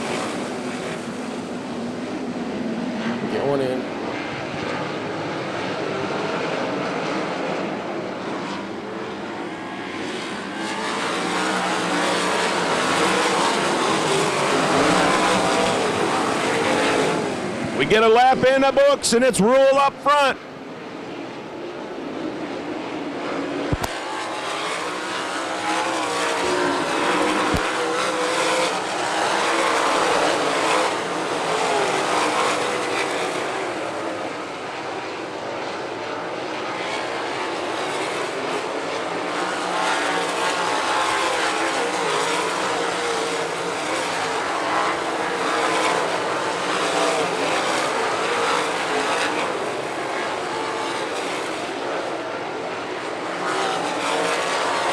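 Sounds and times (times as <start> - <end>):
racing car engines droning: 0.0 - 54.9.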